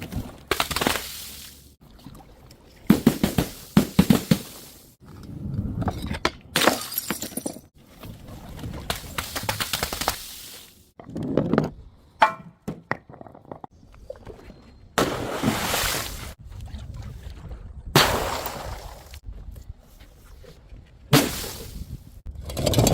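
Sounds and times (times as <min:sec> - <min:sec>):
glass bottles smashing: 0:06.6 - 0:07.7.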